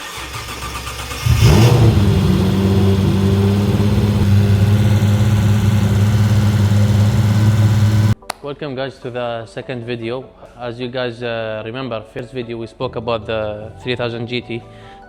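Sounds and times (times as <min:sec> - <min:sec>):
car engine fast idle: 0:00.0 - 0:08.2.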